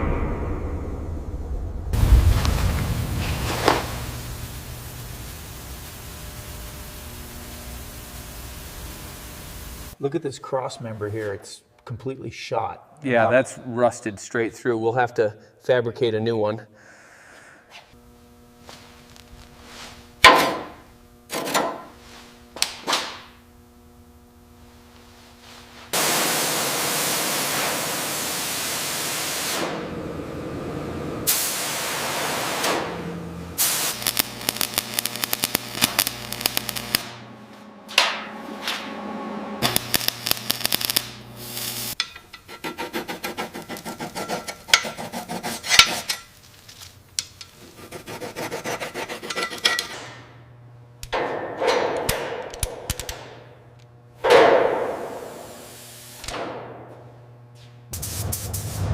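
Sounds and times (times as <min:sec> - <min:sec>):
long hiss: 0:02.0 - 0:10.0
steady motor hum: 0:02.2 - 0:10.0, 0:18.0 - 0:26.0, 0:29.7 - 0:31.3, 0:32.7 - 0:51.2.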